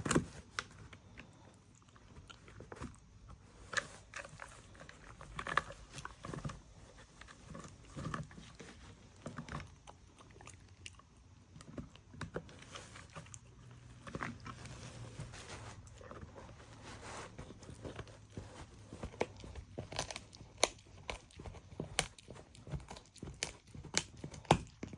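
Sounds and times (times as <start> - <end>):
dog chewing food: 3.8 - 24.9
teeth crunching and clicking: 9.2 - 14.7, 18.7 - 24.9.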